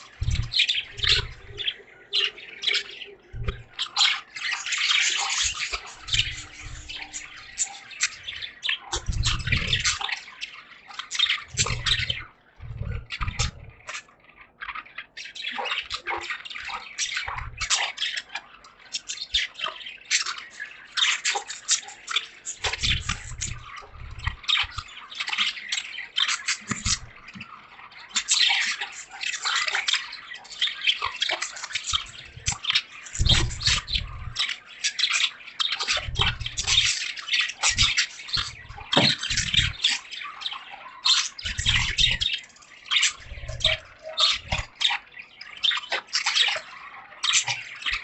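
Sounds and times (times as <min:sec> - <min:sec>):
budgerigars chattering: 0:00.0 - 0:48.0
low thuds: 0:00.2 - 0:01.7, 0:09.0 - 0:10.0, 0:33.2 - 0:34.4.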